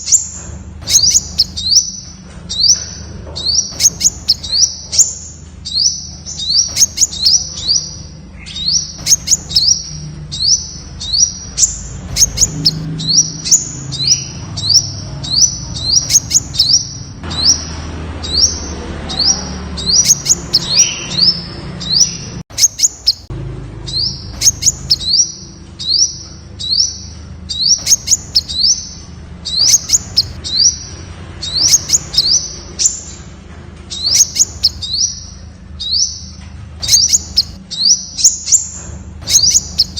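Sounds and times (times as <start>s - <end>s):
bird singing high thin notes: 0.0s - 17.6s, 33.9s - 39.9s.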